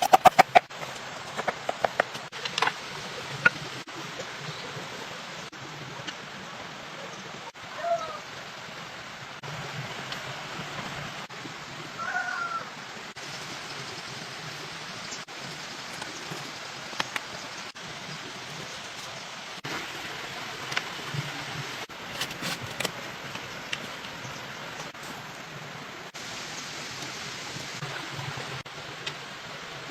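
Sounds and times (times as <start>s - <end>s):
steady rushing noise: 0.0s - 4.0s.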